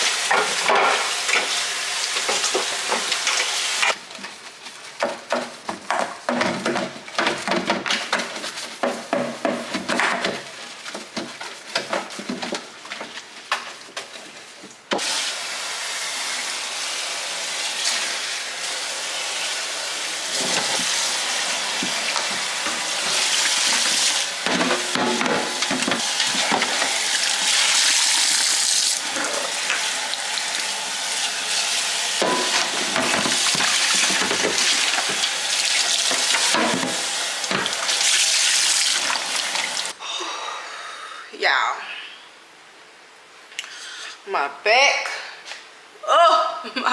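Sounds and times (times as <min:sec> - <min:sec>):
tap water running into sink: 0:00.0 - 0:04.0, 0:19.0 - 0:40.0.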